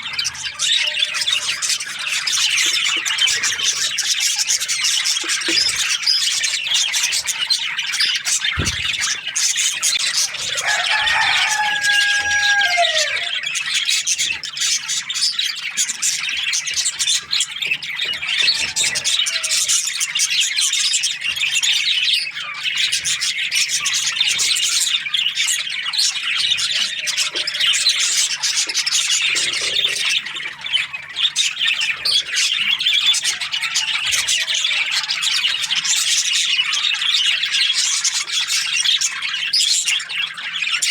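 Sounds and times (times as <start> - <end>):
budgerigars chirping: 0.0 - 40.9
brief low thump: 8.6 - 9.1.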